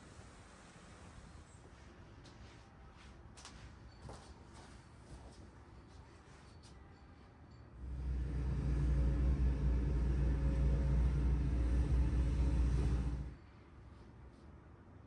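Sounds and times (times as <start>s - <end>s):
machine motor humming: 7.9s - 13.3s.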